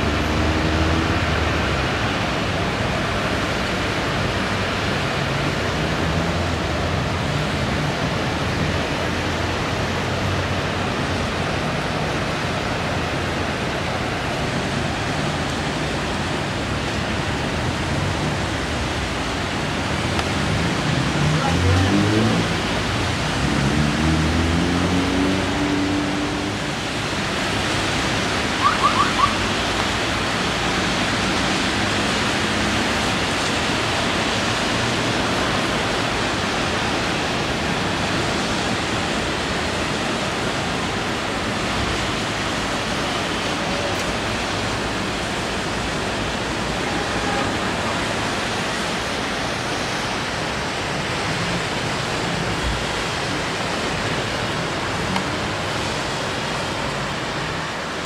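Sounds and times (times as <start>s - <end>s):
rain on pavement and cars: 0.0s - 58.0s.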